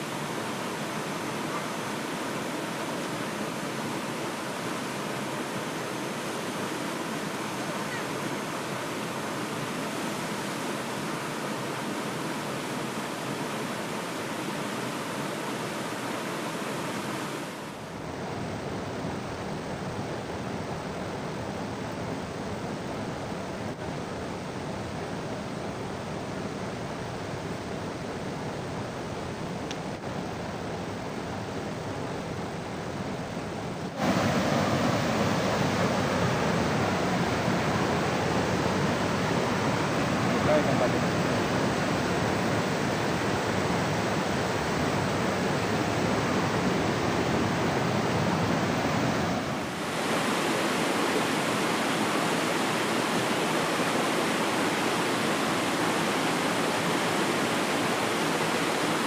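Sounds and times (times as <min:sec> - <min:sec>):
water rushing: 0:00.0 - 0:59.0
heavy rain: 0:33.2 - 0:59.0.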